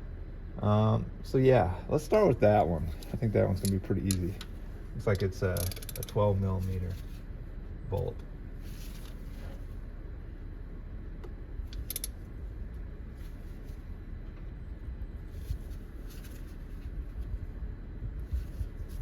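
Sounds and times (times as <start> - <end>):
low steady rumble: 0.0 - 19.0
faint scraping and handling: 2.8 - 9.9, 13.0 - 14.4, 15.2 - 17.4, 18.2 - 19.0
ratchet clicking: 5.1 - 6.2, 11.7 - 12.2.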